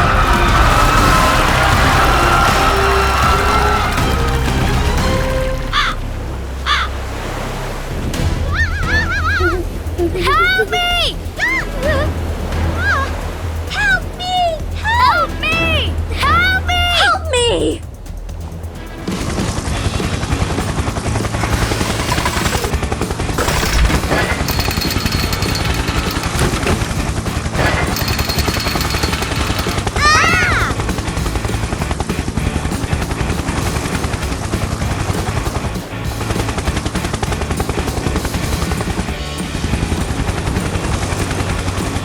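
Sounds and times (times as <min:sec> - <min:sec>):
music: 0:00.0 - 0:42.0
fast rattle of clicks: 0:17.9 - 0:42.0.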